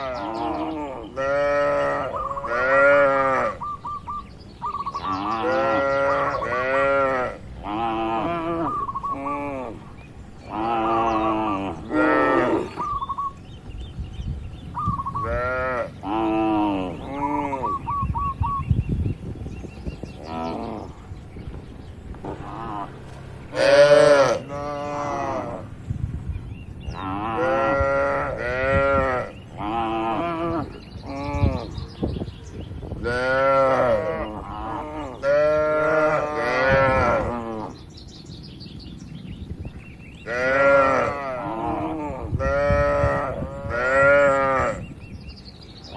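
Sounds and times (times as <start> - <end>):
cattle mooing: 0.0 - 3.6, 5.0 - 9.8, 10.5 - 12.8, 22.3 - 25.7, 33.1 - 37.8, 40.3 - 44.8.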